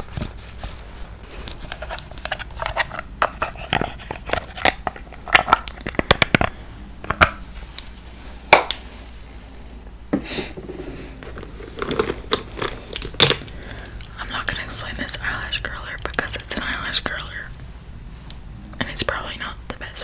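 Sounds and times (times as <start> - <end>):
makeup cases clicking and tapping: 1.9 - 7.4, 11.2 - 17.4.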